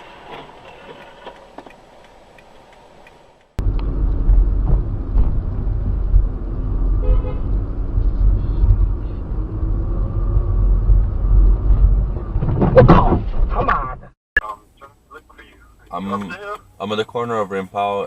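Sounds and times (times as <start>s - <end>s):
car driving rumble: 0.0s - 18.0s
car horn: 6.9s - 9.3s.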